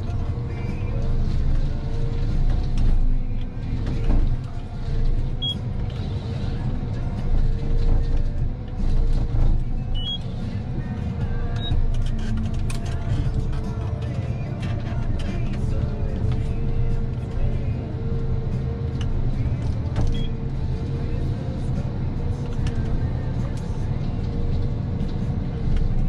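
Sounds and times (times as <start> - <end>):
diesel engine running under load: 0.0 - 26.0.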